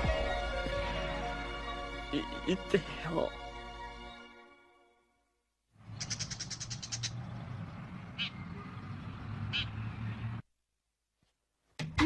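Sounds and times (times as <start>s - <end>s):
bird chirping: 5.8s - 10.4s.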